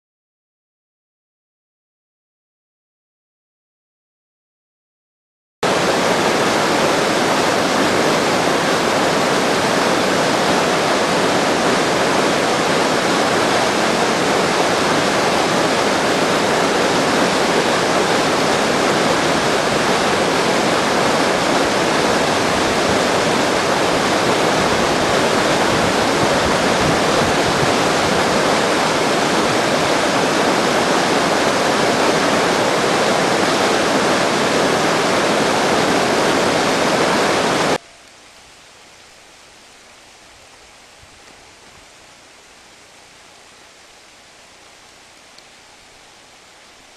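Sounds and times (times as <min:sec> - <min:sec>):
water rushing: 0:05.6 - 0:46.9.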